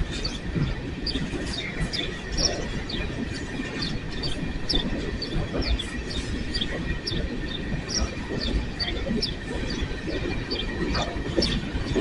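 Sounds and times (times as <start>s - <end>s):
low rolling rumble of train cars: 0.0s - 12.0s.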